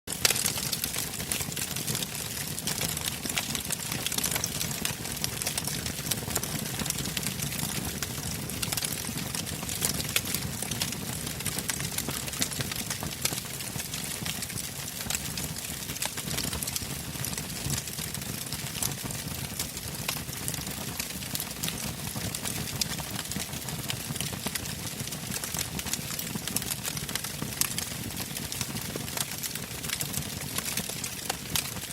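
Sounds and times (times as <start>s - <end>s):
bonfire crackling and popping: 0.1s - 31.9s.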